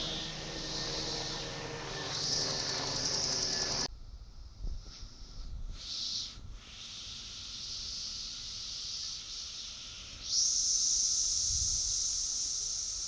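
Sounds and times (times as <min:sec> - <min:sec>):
cicada chorus buzzing: 0:00.0 - 0:03.9, 0:05.7 - 0:13.0
loud nearby cicada calling: 0:00.0 - 0:03.9, 0:05.7 - 0:13.0.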